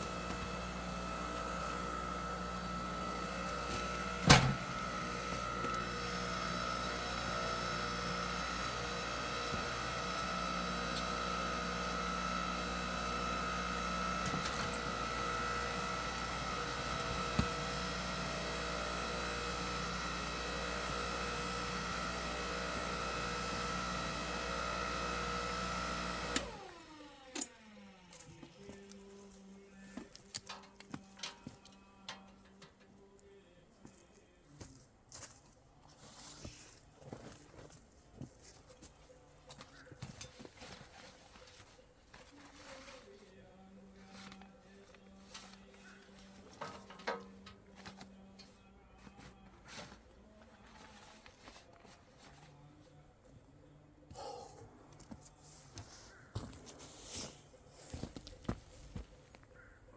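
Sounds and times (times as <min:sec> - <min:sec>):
hydraulic log splitter whine: 0:00.0 - 0:28.5, 0:46.4 - 0:48.1.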